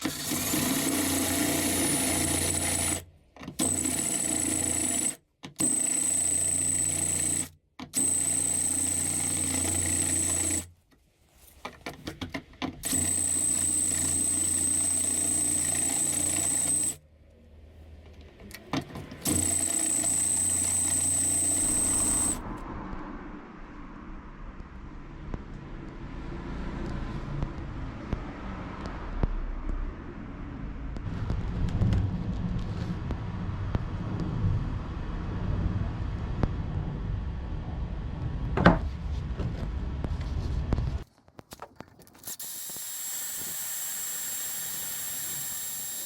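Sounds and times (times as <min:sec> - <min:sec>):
electric power tool whining: 0:00.0 - 0:03.0, 0:03.6 - 0:10.7, 0:12.8 - 0:17.0, 0:19.2 - 0:22.4, 0:42.3 - 0:46.0.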